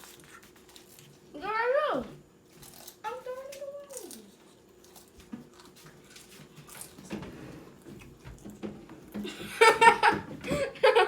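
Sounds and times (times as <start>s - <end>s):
person chewing: 4.0s - 7.1s.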